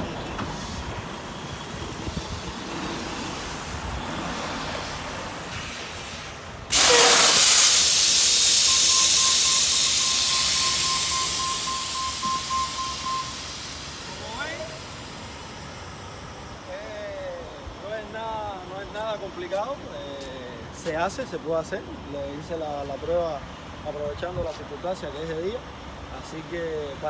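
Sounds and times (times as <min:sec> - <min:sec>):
air brakes hissing: 0:00.0 - 0:19.1
rapid beeping tone: 0:08.4 - 0:16.2.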